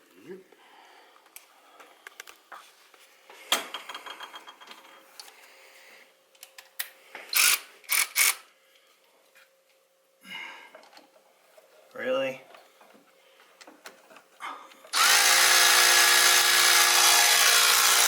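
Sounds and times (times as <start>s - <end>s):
ratchet wrench clicking: 7.3s - 8.4s.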